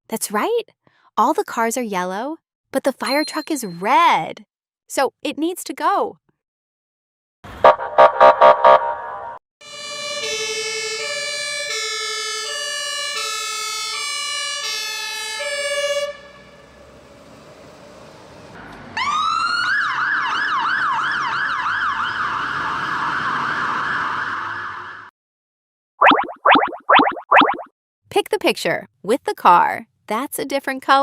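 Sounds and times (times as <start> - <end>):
siren yelp: 7.6 - 16.6, 19.0 - 25.1
two-tone siren: 7.6 - 17.0, 19.0 - 25.1.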